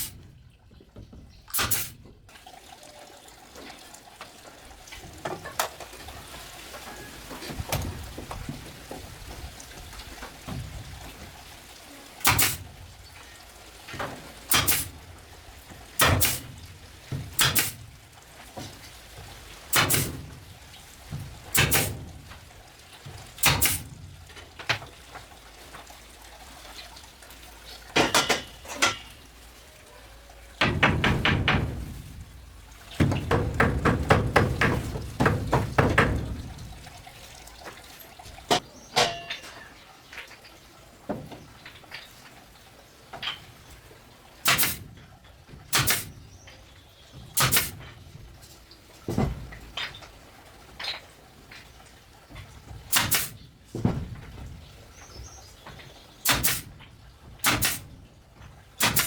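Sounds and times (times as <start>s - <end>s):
sharp knocks: 30.6s - 37.0s.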